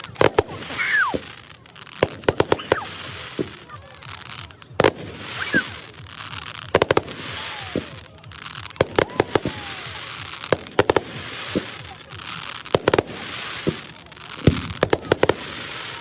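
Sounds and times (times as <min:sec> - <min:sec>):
falling firework whistles: 0:00.0 - 0:03.7, 0:04.8 - 0:08.1
firework bangs: 0:00.0 - 0:16.0
firework crackling: 0:00.0 - 0:16.0.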